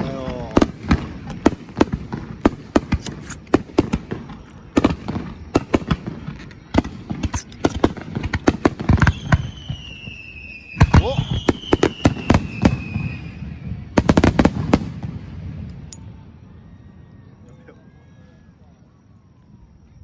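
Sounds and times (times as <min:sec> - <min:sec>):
fireworks bangs and pops: 0:00.0 - 0:15.9
firework whistle falling in pitch: 0:08.9 - 0:13.6.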